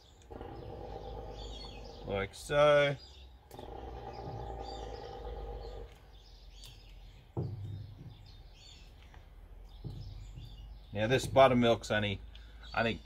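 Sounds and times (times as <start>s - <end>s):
birds chirping: 0.0s - 13.0s
low outdoor noise: 0.0s - 13.0s
low knock: 7.4s - 8.2s.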